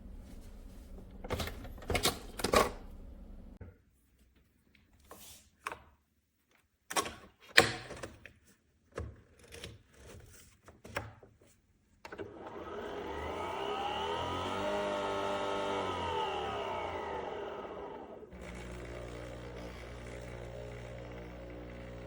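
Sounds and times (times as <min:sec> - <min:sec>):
coffee machine whirring hum: 0:12.4 - 0:22.0.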